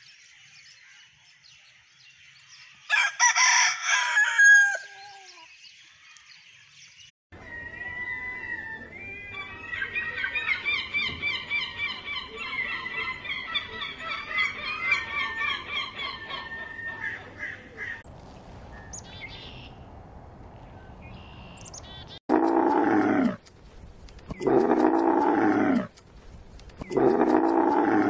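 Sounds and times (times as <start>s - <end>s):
camel calling: 24.4s - 25.9s, 26.9s - 28.0s.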